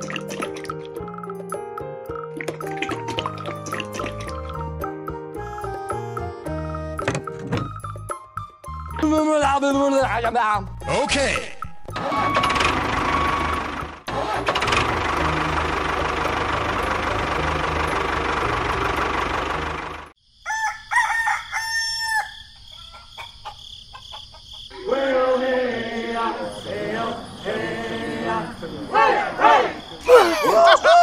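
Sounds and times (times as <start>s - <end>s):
tractor engine running: 11.9s - 20.2s
rooster crowing: 20.4s - 25.0s, 28.9s - 31.0s
voices: 24.7s - 31.0s.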